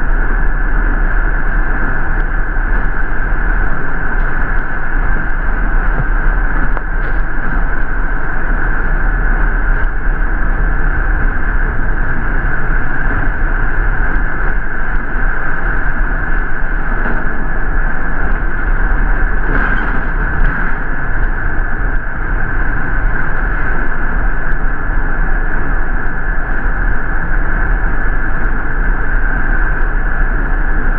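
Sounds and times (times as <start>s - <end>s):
bus engine and road rumble: 0.0s - 30.9s
high-pitched hum: 0.0s - 30.9s.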